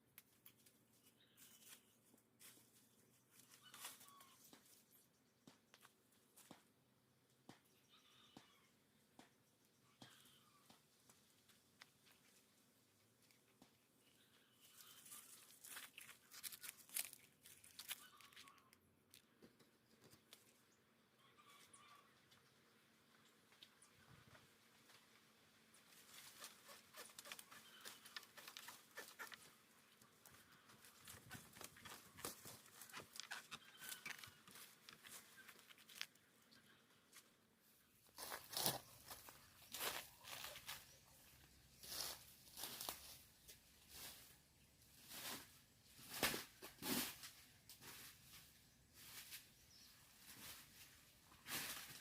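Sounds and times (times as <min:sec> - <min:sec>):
dry leaves and twigs rustling: 0:00.3 - 0:05.0, 0:11.3 - 0:19.4, 0:24.8 - 0:37.3, 0:38.0 - 0:52.0
plant material crackling and tearing: 0:15.1 - 0:19.2.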